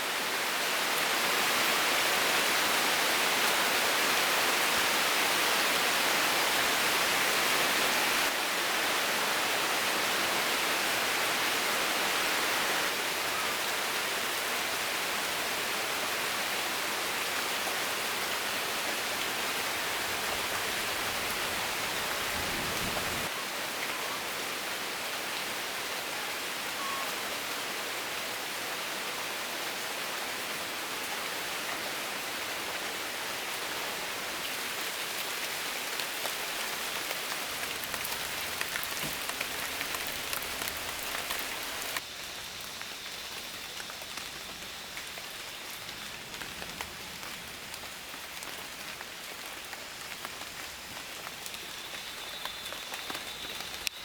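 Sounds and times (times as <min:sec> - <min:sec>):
steady rain hiss: 0:00.0 - 0:54.0
raindrops ticking: 0:36.2 - 0:49.0, 0:50.0 - 0:54.0.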